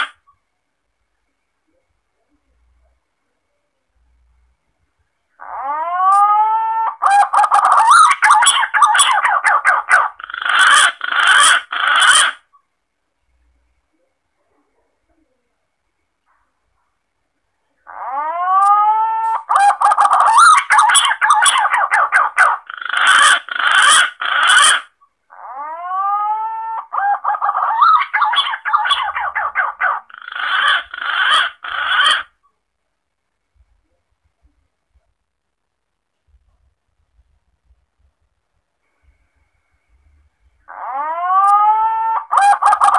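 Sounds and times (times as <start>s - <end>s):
pigeon calls: 5.4s - 12.5s, 17.9s - 32.4s, 40.7s - 42.9s.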